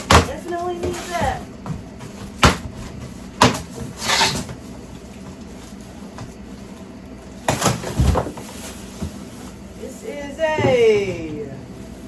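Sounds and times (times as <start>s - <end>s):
knocks on boxes: 0.0s - 3.9s
packaging rustling: 6.7s - 9.8s.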